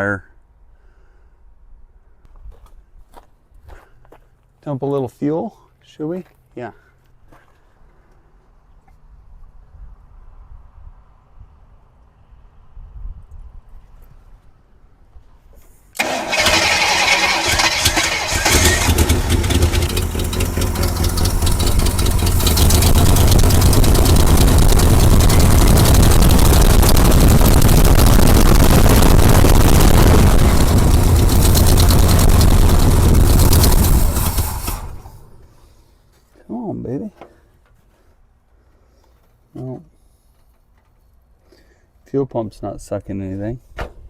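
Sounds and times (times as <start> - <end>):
starter cranking engine: 16.0 - 35.5
engine running rough and loud: 16.0 - 35.6.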